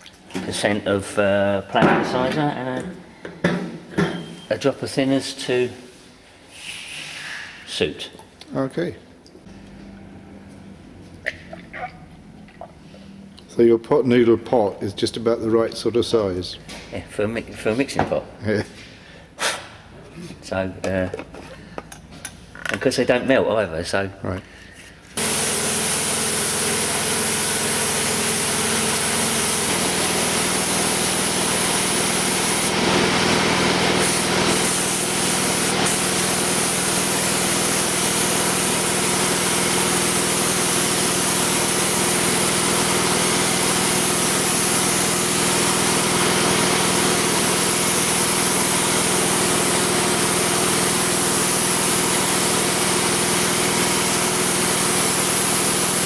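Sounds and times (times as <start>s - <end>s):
spray hissing: 25.2s - 33.2s, 33.9s - 56.0s
spray equipment motor hum: 25.2s - 56.0s.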